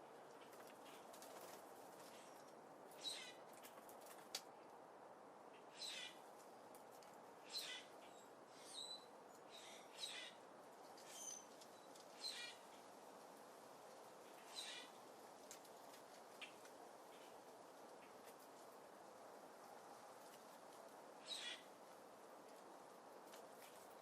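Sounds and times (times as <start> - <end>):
faint steady hiss: 0.0 - 24.0
small birds chirping: 0.3 - 4.4, 5.6 - 12.9, 14.3 - 18.6, 20.8 - 21.8.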